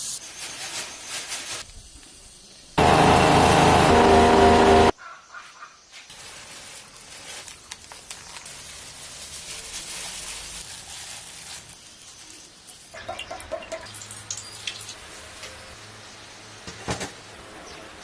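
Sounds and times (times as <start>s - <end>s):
steady hiss: 0.0s - 2.8s.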